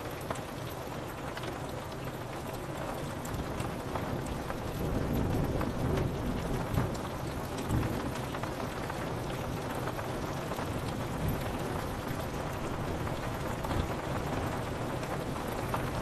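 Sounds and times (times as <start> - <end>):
rain on window glass: 0.0 - 16.0
low rumble of thunder: 3.5 - 16.0.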